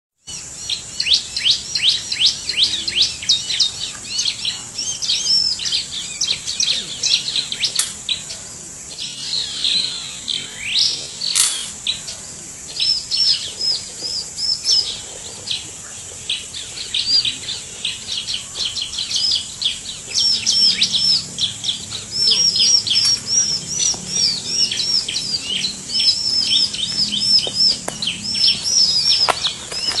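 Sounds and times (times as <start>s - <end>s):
bird calling high sharp chirps: 0.3s - 8.2s, 8.9s - 12.0s, 18.7s - 30.0s
steady high-pitched whine: 0.3s - 30.0s.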